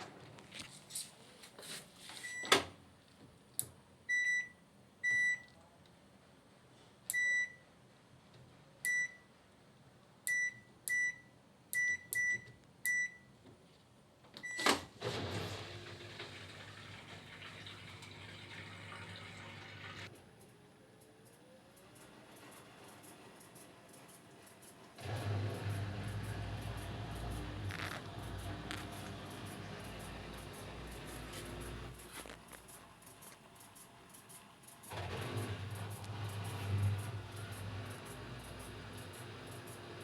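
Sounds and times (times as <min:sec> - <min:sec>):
control panel beeps: 0:10.3 - 0:13.3
washing machine humming: 0:14.4 - 0:40.0.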